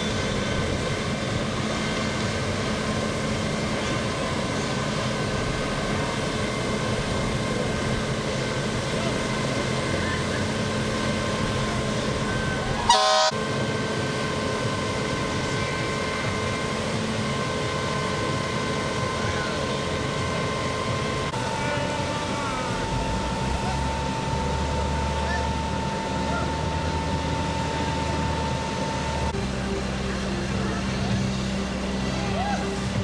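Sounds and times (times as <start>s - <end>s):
fire engine mechanical drone: 0.0s - 33.0s
horn toot: 12.3s - 13.3s.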